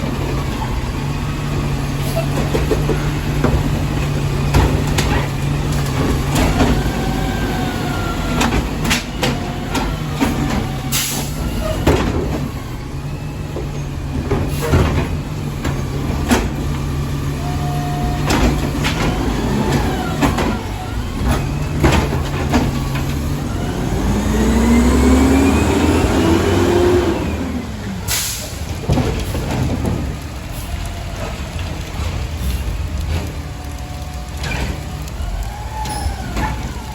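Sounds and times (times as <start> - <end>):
garbage truck engine running: 0.0 - 36.9
trash carts banging: 0.0 - 36.9
short air hisses: 28.1 - 28.6.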